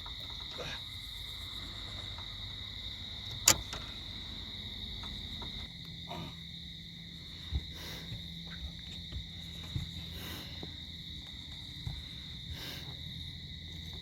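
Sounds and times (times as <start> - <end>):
night insect chorus: 0.0 - 14.0
sharp click: 3.3 - 3.8.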